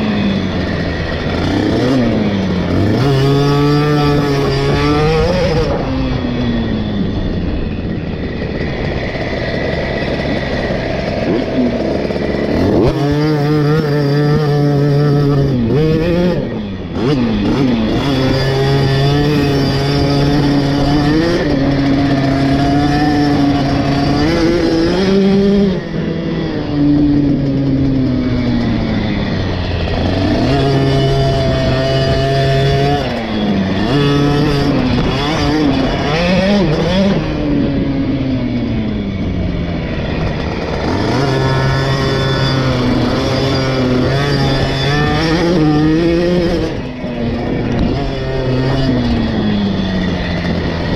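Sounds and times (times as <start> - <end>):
two-stroke motorcycle engine revving: 0.0 - 50.9.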